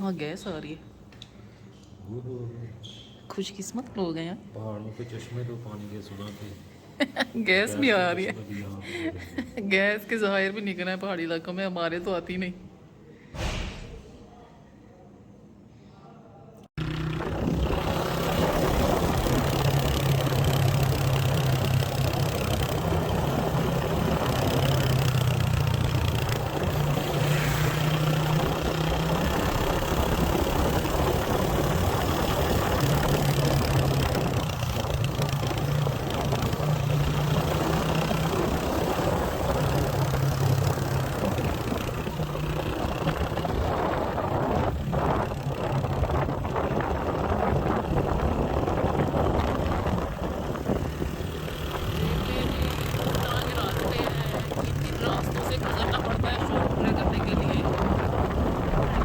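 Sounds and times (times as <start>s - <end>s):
motorcycle engine running: 16.8s - 59.0s
wind and road noise: 16.8s - 59.0s.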